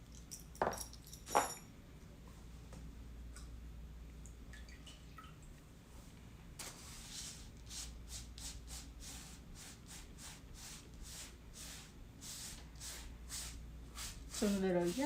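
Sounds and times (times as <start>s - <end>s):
rubbing strokes on work surface: 6.8s - 15.0s.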